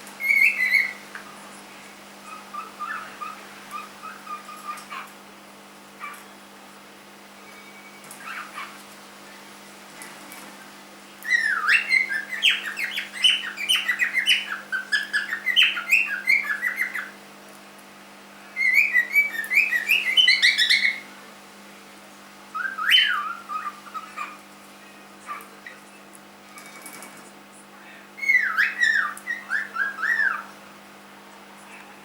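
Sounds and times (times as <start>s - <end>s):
cockatiel chirping and whistling: 0.2s - 1.0s, 2.2s - 5.1s, 7.6s - 8.7s, 11.3s - 17.1s, 18.6s - 21.0s, 22.6s - 24.3s, 28.2s - 30.4s.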